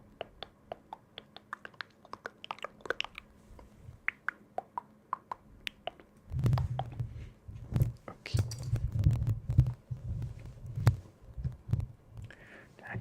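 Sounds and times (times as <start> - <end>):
muffled low thumps: 8.7 - 12.0.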